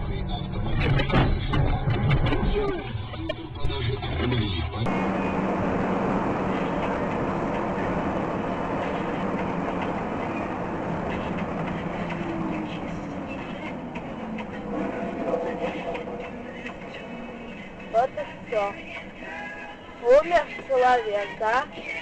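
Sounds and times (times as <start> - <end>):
vehicle rushing rumble: 4.4 - 20.6.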